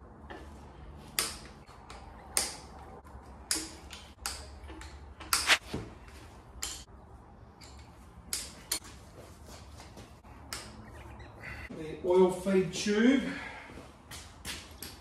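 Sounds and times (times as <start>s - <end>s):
metallic clicks of hand tools: 1.1s - 2.8s, 3.5s - 5.6s, 6.6s - 6.9s, 7.6s - 8.8s.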